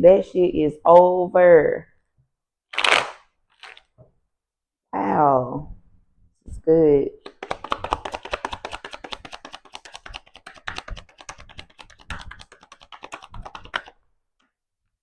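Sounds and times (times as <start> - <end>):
cards being shuffled: 2.8 - 3.9, 7.2 - 14.0.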